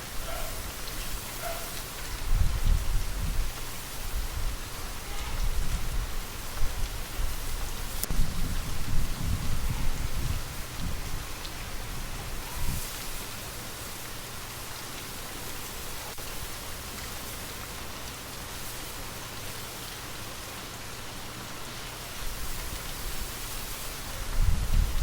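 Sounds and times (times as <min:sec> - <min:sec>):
rain falling: 0:00.0 - 0:25.0
wind gusts: 0:01.4 - 0:13.1, 0:24.0 - 0:25.0.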